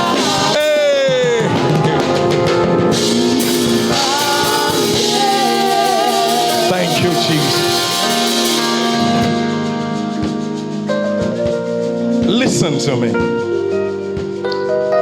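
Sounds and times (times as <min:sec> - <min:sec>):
person singing: 0:00.0 - 0:09.3
sustained instrumental chords: 0:00.0 - 0:15.0.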